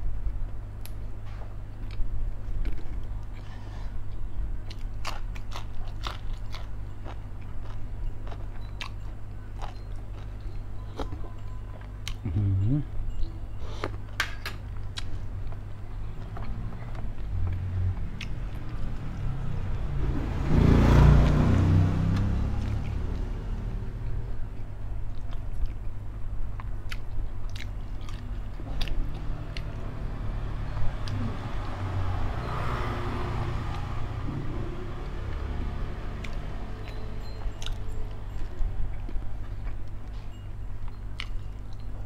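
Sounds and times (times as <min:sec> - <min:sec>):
chewing and biting food: 0:01.8 - 0:12.4, 0:14.8 - 0:19.5, 0:24.6 - 0:30.0, 0:34.8 - 0:42.0.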